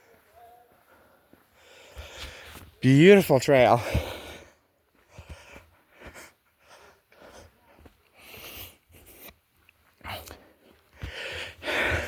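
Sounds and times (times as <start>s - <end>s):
person breathing: 0.8s - 2.6s, 3.8s - 9.3s, 10.0s - 12.0s.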